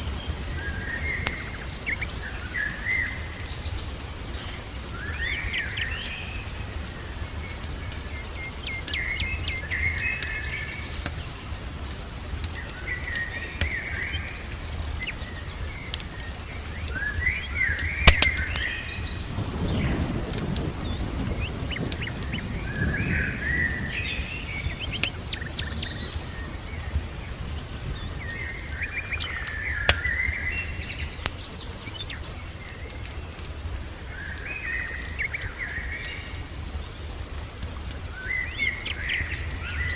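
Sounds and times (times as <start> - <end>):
fireplace crackling: 0.0 - 39.9
songbird warbling: 12.5 - 39.9.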